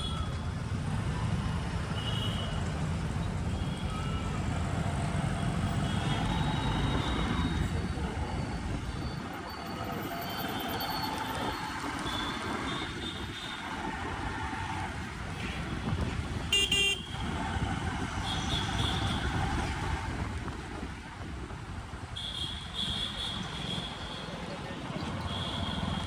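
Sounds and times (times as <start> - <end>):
road traffic noise: 0.0 - 26.0
vehicle horn honking: 16.5 - 17.2.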